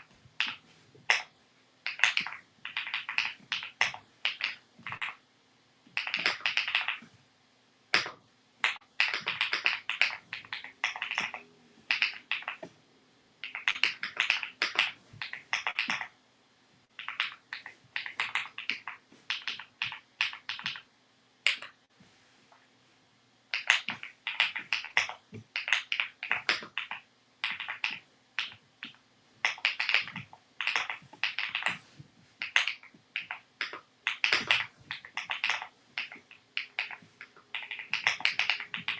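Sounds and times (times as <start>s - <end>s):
mechanical keyboard typing: 1.9s - 5.2s, 5.9s - 7.0s, 8.0s - 12.7s, 23.5s - 31.8s, 32.4s - 38.9s.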